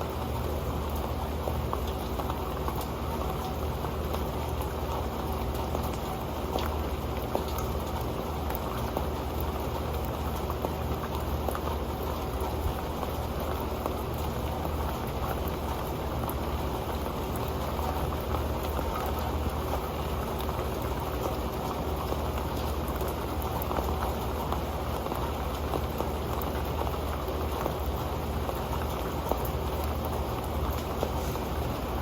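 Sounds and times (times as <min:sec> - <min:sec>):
rain falling on a metal pan: 0:00.0 - 0:32.0.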